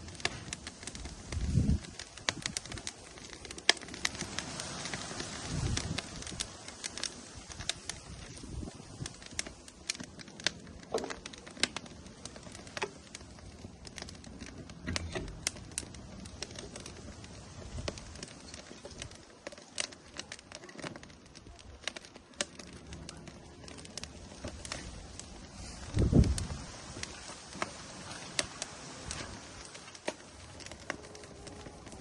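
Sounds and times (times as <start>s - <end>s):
firewood crackling: 0.0s - 32.0s
soft steady hiss: 0.0s - 32.0s.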